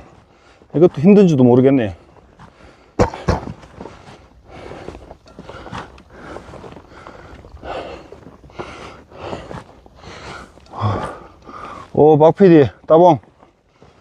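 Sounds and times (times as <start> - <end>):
footsteps on trail: 0.0 - 14.0
person breathing: 2.4 - 3.0, 3.7 - 12.0, 13.6 - 14.0.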